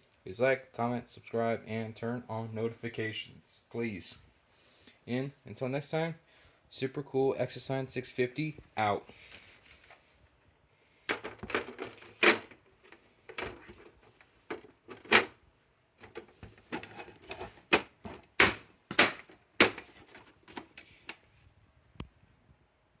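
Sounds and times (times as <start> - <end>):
sharp clicks and knocks: 11.1 - 12.6, 13.3 - 15.3, 16.0 - 21.2.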